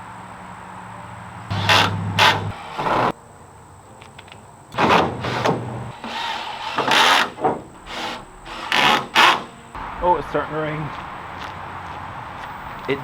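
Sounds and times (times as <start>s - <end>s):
scrapes and knocks: 1.5s - 3.2s, 4.8s - 9.6s.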